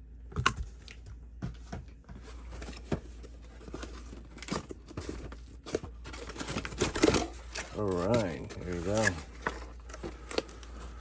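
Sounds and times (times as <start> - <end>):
package being torn open: 5.6 - 10.7.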